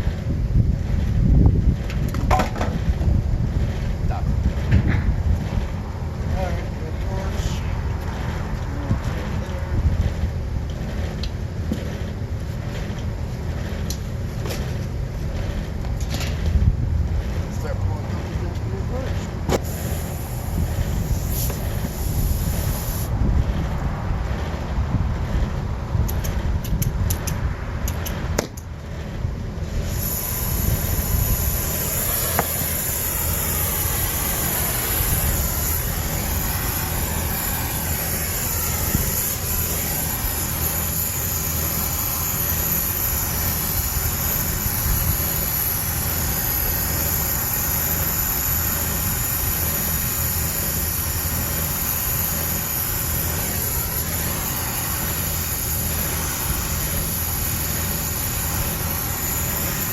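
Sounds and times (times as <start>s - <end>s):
low rumble: 2.8s - 40.4s.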